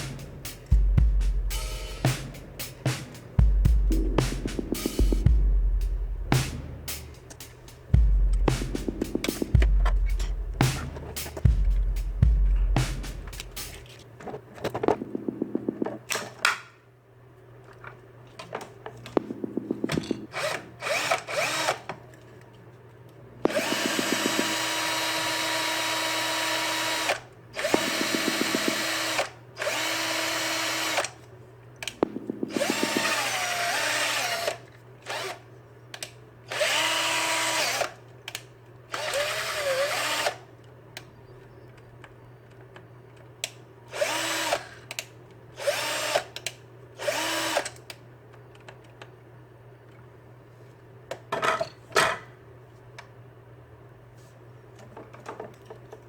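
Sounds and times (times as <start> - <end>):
steady low hum: 0.0 - 14.2, 19.0 - 20.3, 31.3 - 34.6
cordless drill motor running: 20.3 - 21.9, 23.5 - 31.2, 32.4 - 35.4, 36.5 - 38.0, 39.0 - 40.4, 43.9 - 44.8, 45.6 - 46.3, 47.0 - 47.7.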